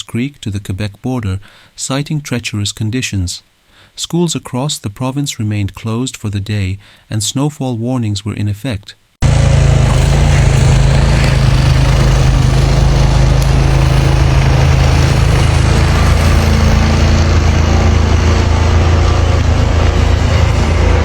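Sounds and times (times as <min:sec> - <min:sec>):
engine running loudly: 0:09.2 - 0:21.0.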